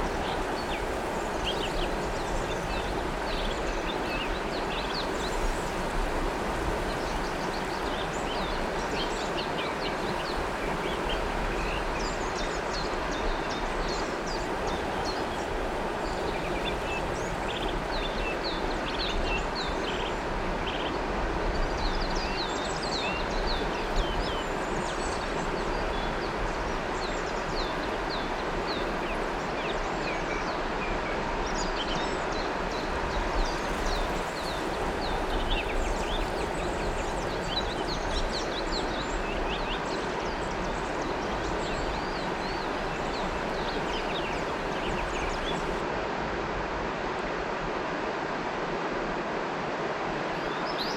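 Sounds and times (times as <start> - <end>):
river water flowing: 0.0 - 50.9
birds chirping: 35.5 - 45.8.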